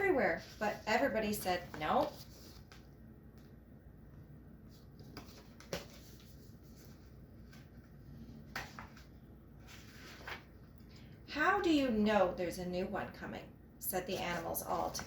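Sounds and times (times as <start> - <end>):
book pages handled: 0.3 - 3.5, 4.7 - 10.8.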